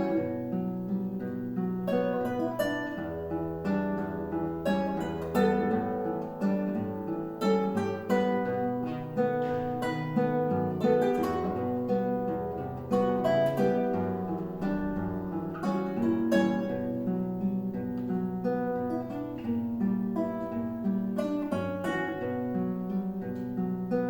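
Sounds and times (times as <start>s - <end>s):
acoustic guitar duet: 0.0s - 24.0s.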